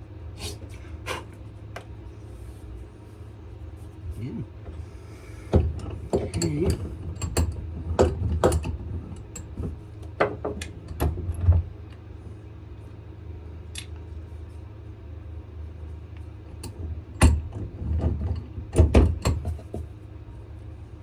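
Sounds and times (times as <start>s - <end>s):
steady low hum: 0.0s - 21.0s
vise clicking and knocking: 5.5s - 11.6s, 16.6s - 19.9s.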